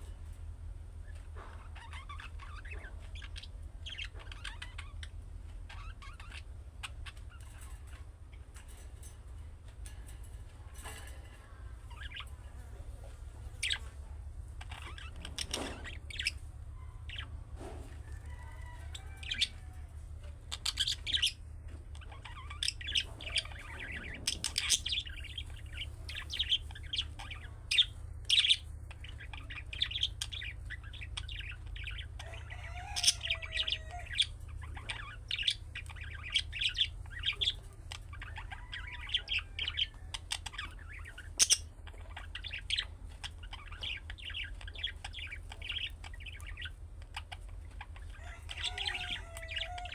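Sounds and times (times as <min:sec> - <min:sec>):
steady low hum: 0:00.0 - 0:49.9
budgerigar chirping and warbling: 0:01.6 - 0:08.0, 0:20.5 - 0:21.4, 0:22.0 - 0:49.9.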